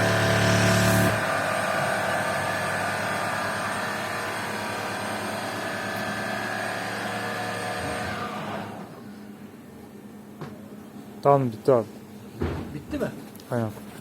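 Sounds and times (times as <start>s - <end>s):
foam cutting machine motor whine: 0.0s - 9.0s.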